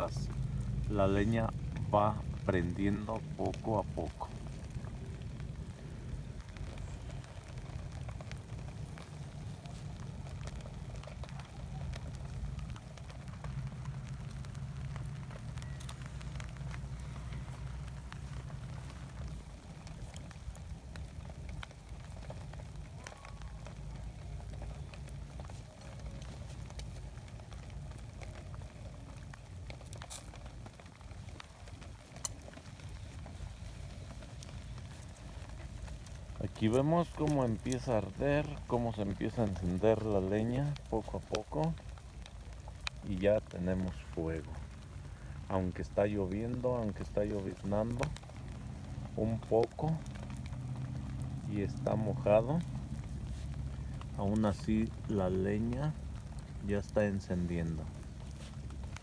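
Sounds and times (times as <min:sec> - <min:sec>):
campfire crackling: 0:00.0 - 0:59.0
light drizzle hiss: 0:00.0 - 0:59.0
low steady rumble: 0:00.0 - 0:59.0.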